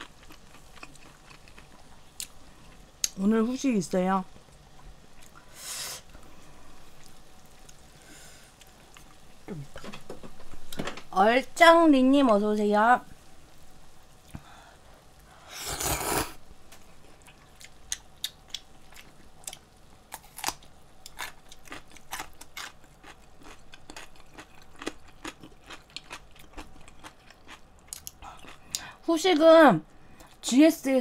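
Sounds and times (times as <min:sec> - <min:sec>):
person chewing and crunching: 0:00.0 - 0:03.2, 0:17.2 - 0:29.0.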